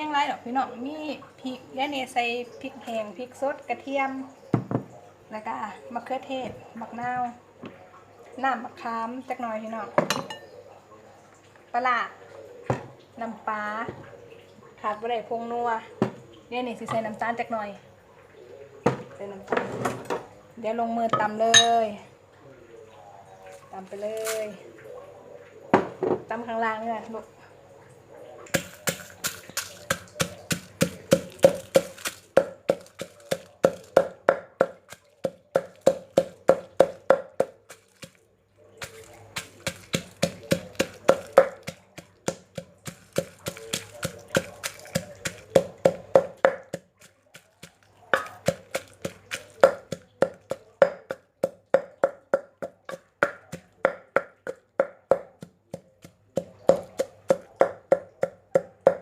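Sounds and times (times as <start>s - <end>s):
pestle pounding in mortar: 28.5s - 38.2s, 38.8s - 59.0s.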